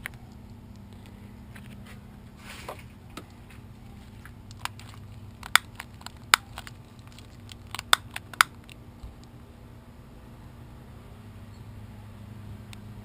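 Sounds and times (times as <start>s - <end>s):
low steady hum: 0.0s - 13.0s
sharp clicks and cracks: 4.2s - 9.4s.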